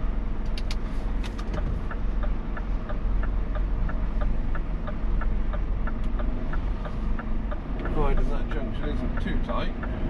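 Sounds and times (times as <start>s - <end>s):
diesel truck engine rumbling: 0.0s - 10.0s
sharp clicks: 0.4s - 8.3s
indicator ticking: 1.6s - 10.0s.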